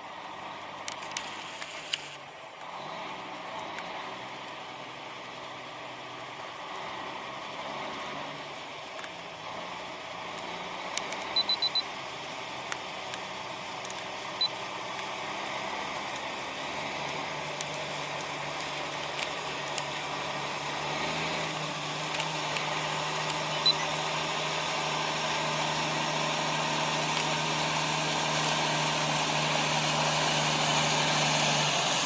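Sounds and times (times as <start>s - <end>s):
truck engine humming: 0.0s - 32.0s.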